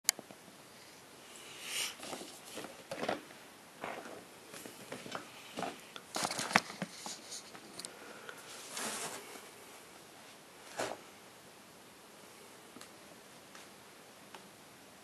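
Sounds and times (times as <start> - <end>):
packaging rustling: 2.0 - 7.8.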